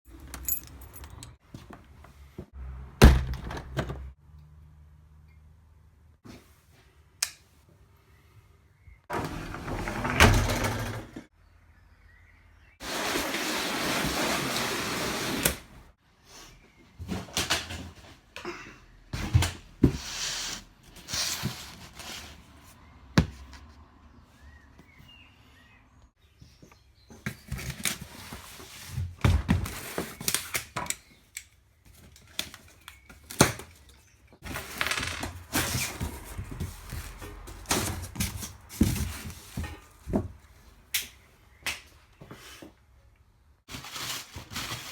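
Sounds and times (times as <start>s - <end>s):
rustling and scraping: 19.2s - 23.9s, 34.4s - 40.4s, 43.7s - 44.9s
parts and packaging knocking: 23.2s - 23.7s.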